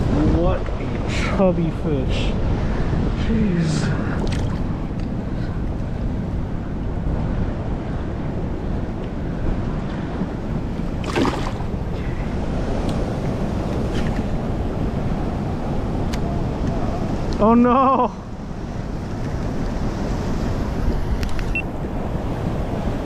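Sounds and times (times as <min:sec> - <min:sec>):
river water flowing: 0:00.0 - 0:05.6, 0:07.9 - 0:15.8
wind on microphone: 0:00.0 - 0:23.0.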